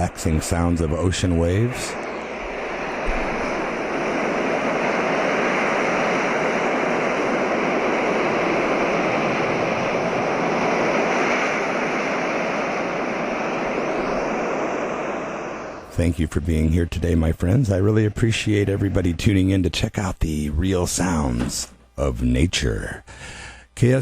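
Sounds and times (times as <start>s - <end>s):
ocean surf rushing: 0.0s - 15.9s.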